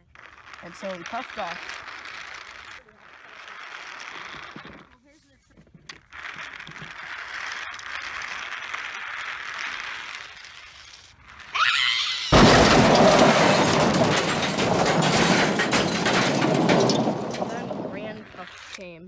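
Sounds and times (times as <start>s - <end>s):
loud smash of breaking glass: 12.3s - 18.4s.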